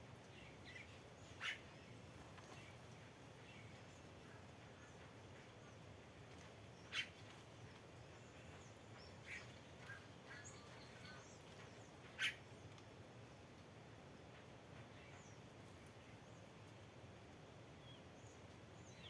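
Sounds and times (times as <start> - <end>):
low steady hiss: 0.0 - 19.0
faint bird chirps: 0.4 - 1.7, 9.0 - 12.4
loud sharp bird calls: 12.2 - 12.4.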